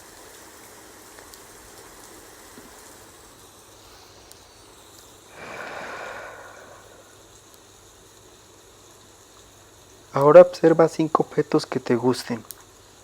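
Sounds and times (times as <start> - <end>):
rain hiss: 0.0 - 13.0
breath-like whoosh: 5.3 - 7.2.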